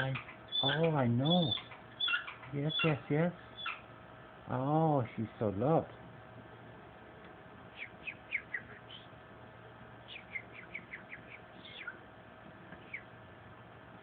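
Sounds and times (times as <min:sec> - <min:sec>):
falcon calling: 0:00.0 - 0:03.9, 0:07.8 - 0:09.1, 0:10.0 - 0:12.0.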